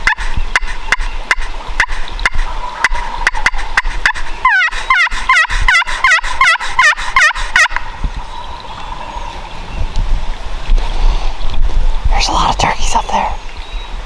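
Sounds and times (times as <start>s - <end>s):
turkey clucks: 0.1s - 7.8s
turkey yelping: 2.4s - 7.8s.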